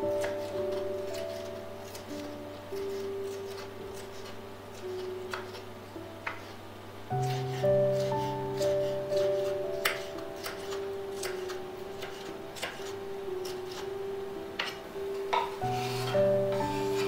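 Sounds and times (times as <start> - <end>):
soft background music: 0.0 - 17.0
dishes and utensils clinking: 14.6 - 17.0.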